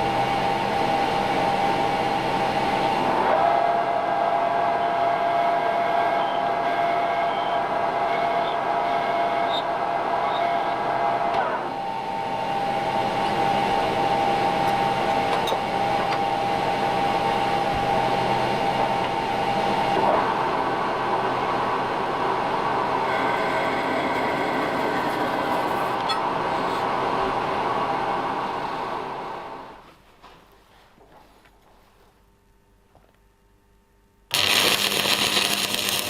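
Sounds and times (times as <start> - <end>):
metal lathe whining: 21.9 - 28.5.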